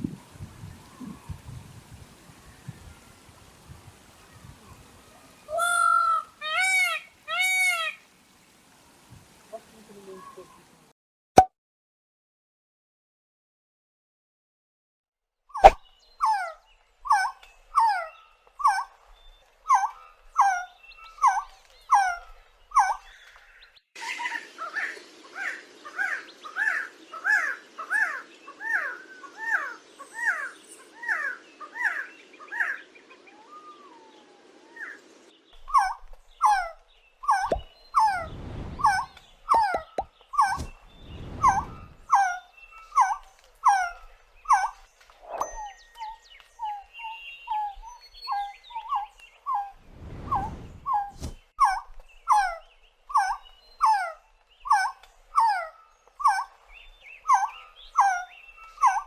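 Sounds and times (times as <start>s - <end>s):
background hiss: 0.0s - 10.9s
bird calling: 34.7s - 59.0s.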